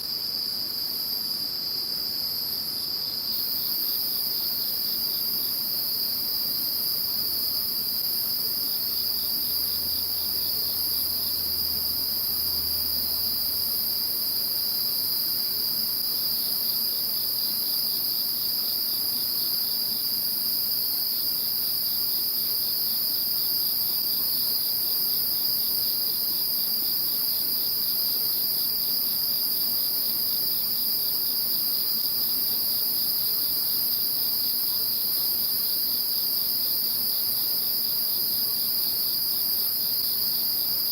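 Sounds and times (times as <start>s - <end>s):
crickets trilling: 0.0s - 40.9s
high insect whine: 3.0s - 23.2s.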